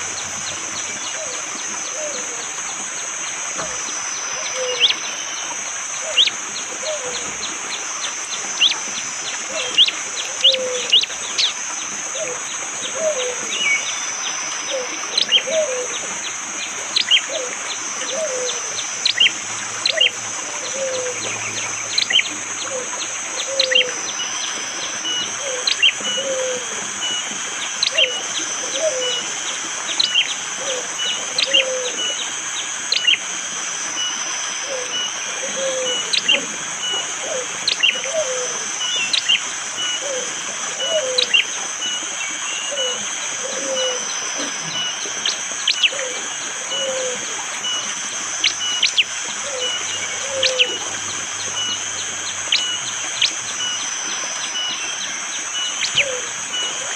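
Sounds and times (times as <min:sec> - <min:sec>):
steady high drone: 0:00.0 - 0:56.9
bird sharp high calls: 0:16.9 - 0:33.3, 0:34.0 - 0:56.9.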